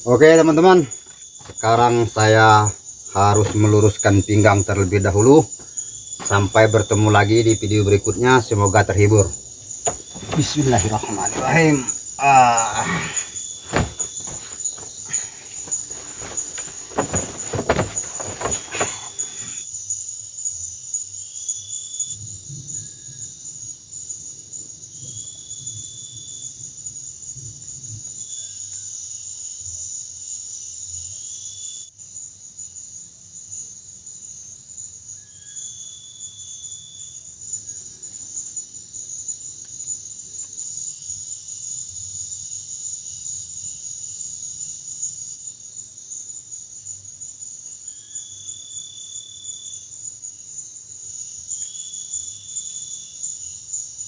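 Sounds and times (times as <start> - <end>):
forest insects droning: 0.0 - 54.0
knocks and rustles: 1.0 - 2.3, 9.8 - 19.6.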